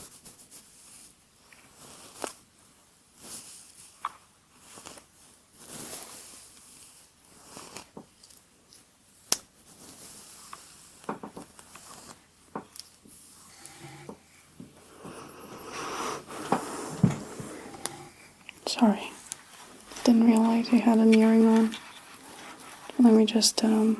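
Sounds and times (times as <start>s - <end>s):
hairbrush swishing through hair: 1.7s - 2.4s, 4.6s - 8.0s, 9.7s - 12.3s, 15.1s - 23.9s.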